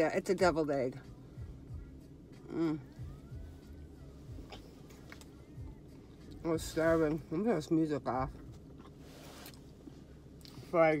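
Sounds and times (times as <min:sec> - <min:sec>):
faint background music: 0:00.0 - 0:11.0
person chewing: 0:08.5 - 0:10.6.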